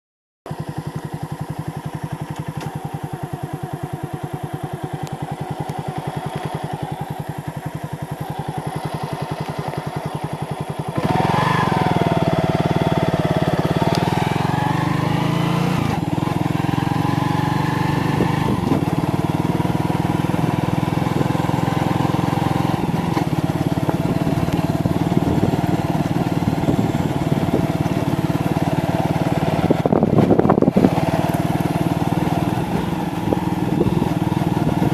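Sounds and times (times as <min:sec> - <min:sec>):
motorcycle engine: 0:00.5 - 0:34.9.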